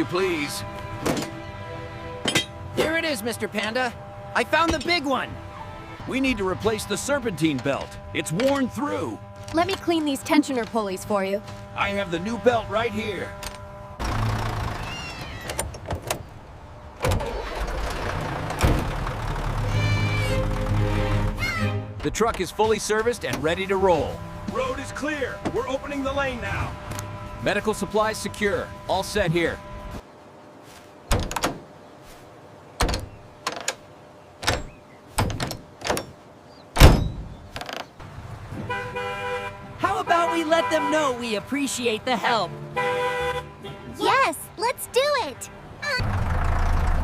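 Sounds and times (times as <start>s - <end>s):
truck engine idling: 0.0s - 15.6s, 16.2s - 30.0s, 44.6s - 47.0s.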